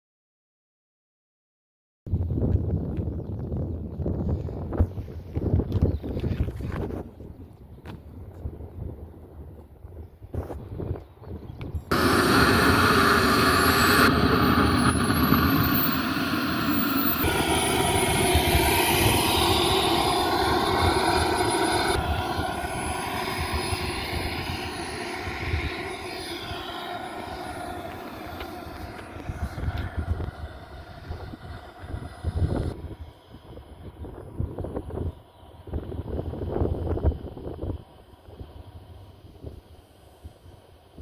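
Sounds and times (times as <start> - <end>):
propeller airplane engine: 11.9 - 40.9.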